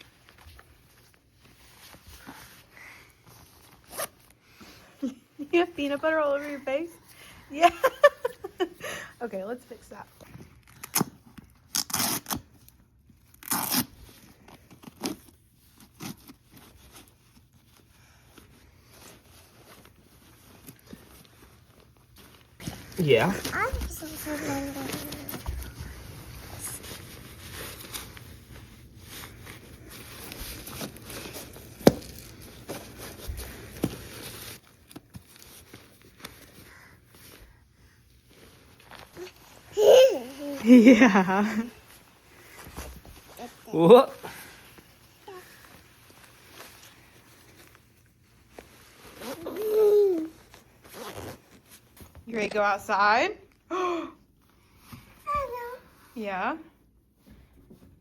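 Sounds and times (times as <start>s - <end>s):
rustling and handling noises: 0.0s - 58.0s
cleaning wipe tearing and rustling: 10.6s - 37.4s.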